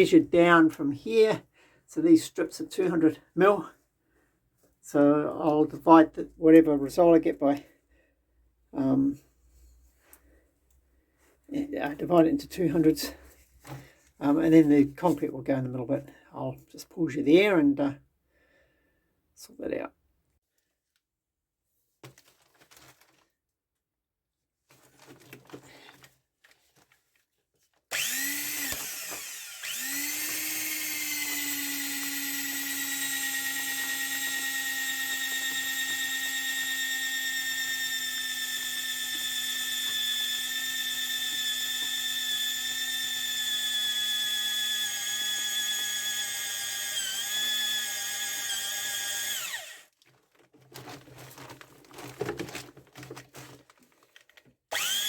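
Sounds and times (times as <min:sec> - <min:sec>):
electric drill whining: 0:27.9 - 0:49.9, 0:54.7 - 0:55.0.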